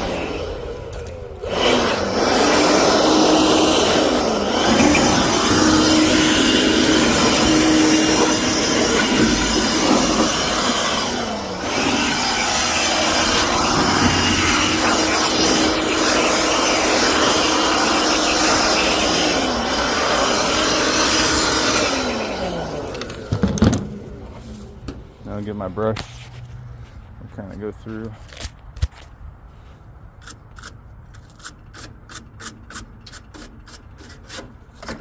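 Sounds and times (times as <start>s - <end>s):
handheld blower whining: 0.0s - 25.0s.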